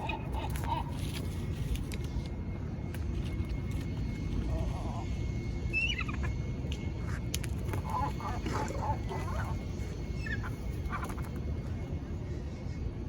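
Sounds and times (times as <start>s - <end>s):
seagulls squawking: 0.0s - 1.5s, 4.4s - 6.4s, 7.6s - 11.4s
steady low rumble: 0.0s - 13.0s.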